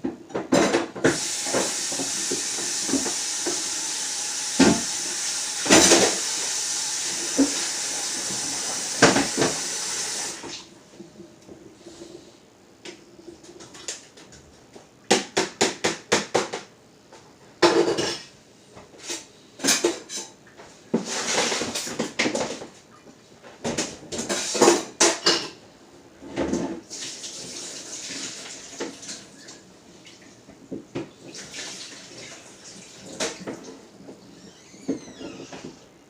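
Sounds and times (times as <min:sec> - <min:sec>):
clatters against a dish: 0:19.0 - 0:20.4.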